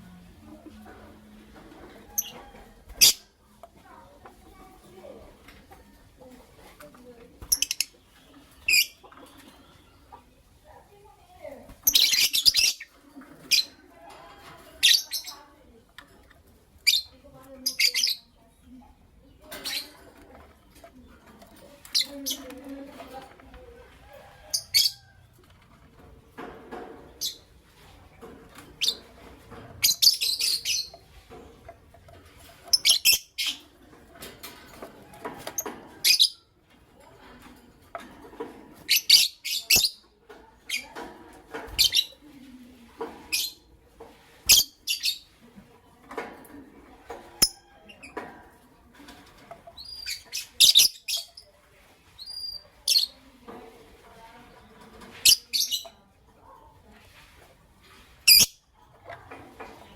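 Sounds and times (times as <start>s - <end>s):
soft low bird chatter: 0.0s - 59.9s
lovebirds chirping: 7.0s - 10.4s, 11.0s - 13.8s, 29.8s - 31.2s.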